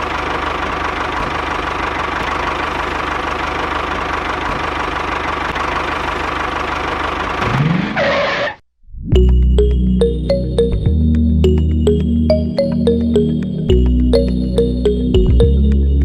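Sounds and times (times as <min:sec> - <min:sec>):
engine running steadily: 0:00.0 - 0:07.4.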